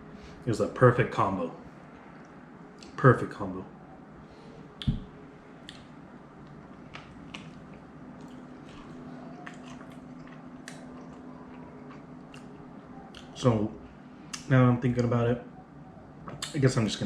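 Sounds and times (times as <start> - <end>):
man chewing food: 4.8 - 13.4
wet eating smacks: 4.8 - 13.4.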